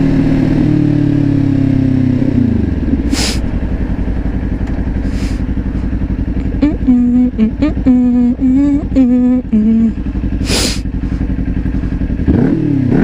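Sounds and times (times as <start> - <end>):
motorcycle engine idling: 0.0 - 13.0
short hisses: 3.0 - 3.6, 5.0 - 5.9, 10.4 - 11.2.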